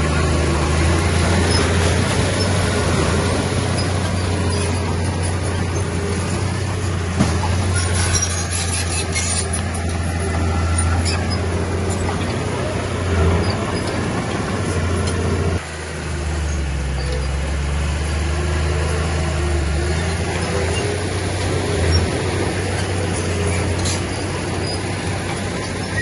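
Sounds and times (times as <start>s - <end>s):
diesel engine of heavy machinery: 0.0s - 26.0s.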